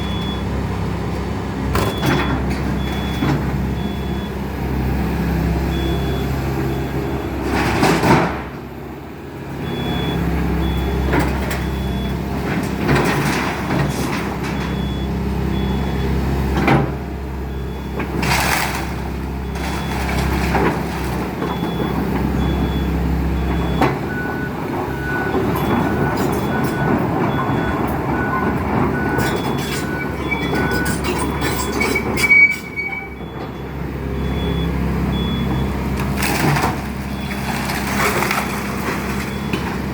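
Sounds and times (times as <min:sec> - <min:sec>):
excavator diesel engine running: 0:00.0 - 0:39.9
debris crashing and crunching: 0:18.1 - 0:22.5, 0:35.6 - 0:39.9
high warning beep: 0:23.6 - 0:33.4.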